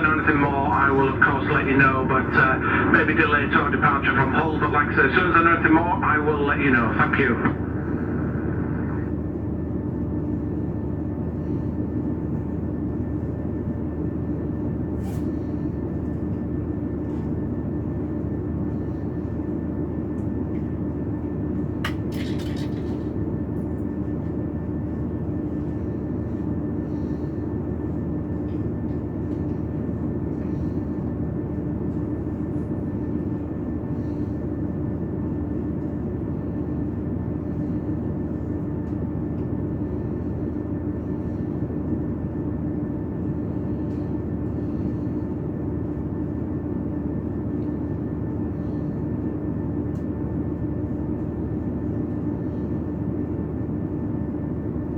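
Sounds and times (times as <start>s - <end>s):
train rumble from inside: 0.0s - 54.9s.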